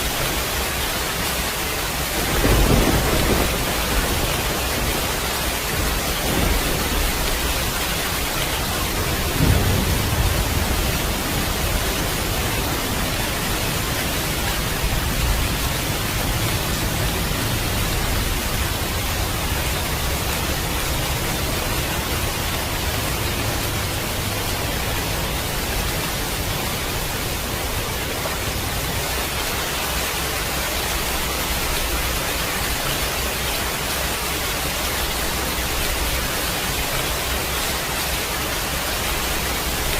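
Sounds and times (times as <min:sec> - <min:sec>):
steady rain hissing: 0:00.0 - 0:39.9
thunder rumbling: 0:01.8 - 0:33.5.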